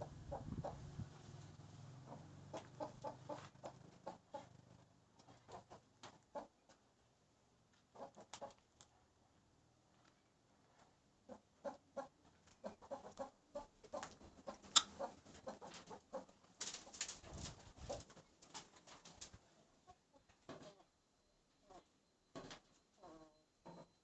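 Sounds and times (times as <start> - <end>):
chickens clucking: 0.0 - 1.1, 2.0 - 6.8, 7.9 - 8.7, 11.2 - 20.9.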